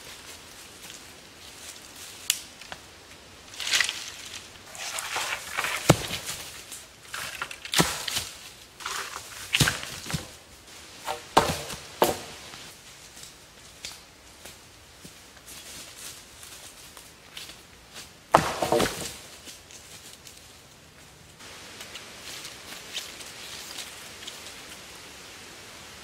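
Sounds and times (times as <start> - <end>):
footsteps crunching dry leaves: 3.5 - 20.6, 21.4 - 24.8
dry wood cracking and knocking: 3.6 - 10.4, 11.0 - 12.6, 18.3 - 19.3.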